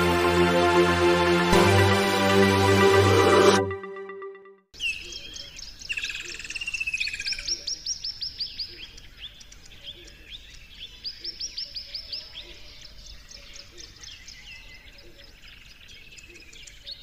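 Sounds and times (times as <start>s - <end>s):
songbirds chirping and trilling: 4.8s - 17.0s.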